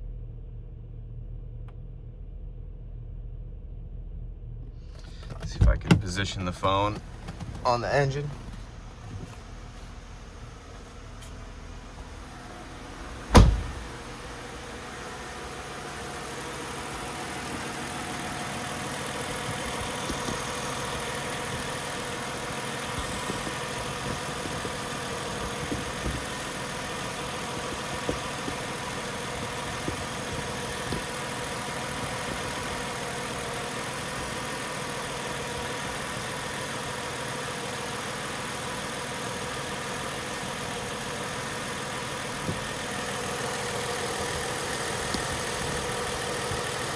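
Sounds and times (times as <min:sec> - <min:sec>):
car engine idling: 0:00.4 - 0:46.9
loud thump: 0:13.1 - 0:14.2.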